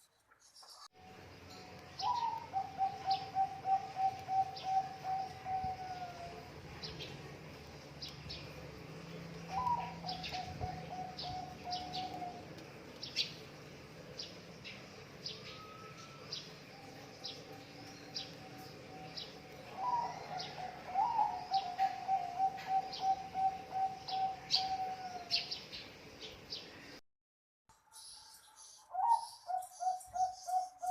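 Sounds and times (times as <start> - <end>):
small bird chirping: 1.8 - 26.7
dove cooing: 2.0 - 7.0, 9.4 - 12.6, 16.8 - 25.6, 28.9 - 30.9.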